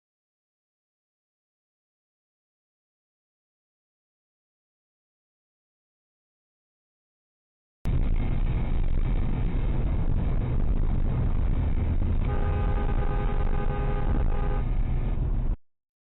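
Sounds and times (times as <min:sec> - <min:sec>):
car engine and road rumble: 0:07.9 - 0:15.6
car horn: 0:12.2 - 0:14.8.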